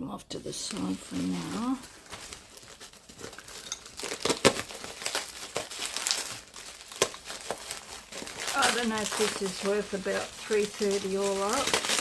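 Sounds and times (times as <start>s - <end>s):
packaging crinkling: 0.5s - 12.0s.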